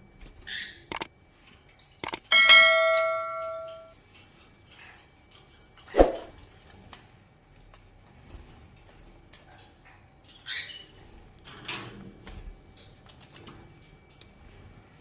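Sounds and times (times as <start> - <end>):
bird calls: 1.8 - 3.8
metal object ringing: 2.0 - 3.9.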